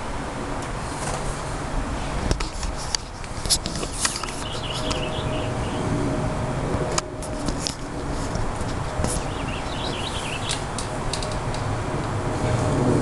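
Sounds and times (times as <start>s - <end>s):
songbird chirping warbling phrases: 4.4s - 5.8s, 9.2s - 10.7s
sharp clicks: 9.0s - 11.7s.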